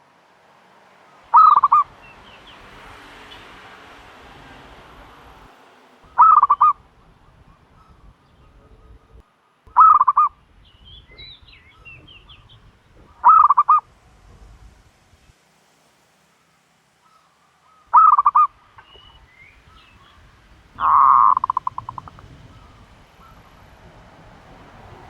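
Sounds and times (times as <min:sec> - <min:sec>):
turtle dove throbbing calls: 0:01.0 - 0:04.7, 0:05.3 - 0:14.3, 0:17.0 - 0:25.0
faint high bird chirps: 0:01.3 - 0:02.7, 0:06.0 - 0:13.8, 0:17.0 - 0:23.6.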